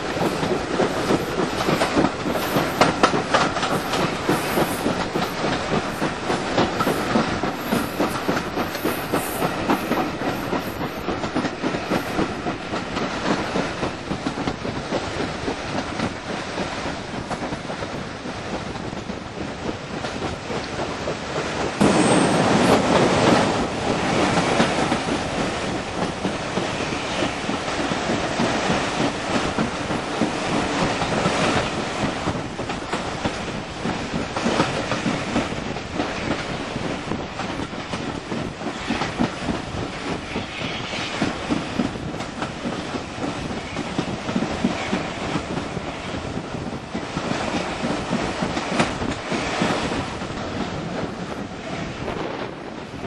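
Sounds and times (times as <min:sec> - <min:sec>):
train wheels clattering over rail joints: 0:00.0 - 0:53.0.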